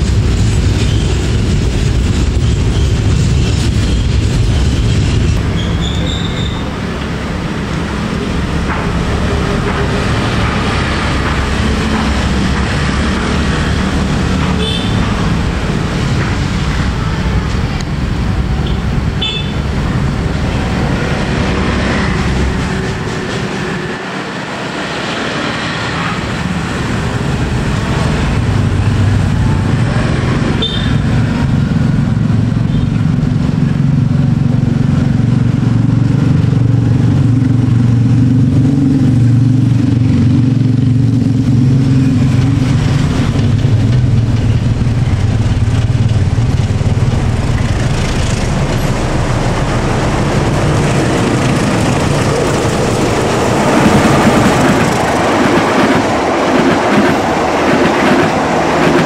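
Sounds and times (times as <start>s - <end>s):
train wagons clattering: 0.0s - 31.4s, 42.2s - 59.0s
diesel locomotive engine hum: 0.0s - 59.0s
train wheels squealing: 0.8s - 1.2s, 3.8s - 6.7s, 30.6s - 31.2s.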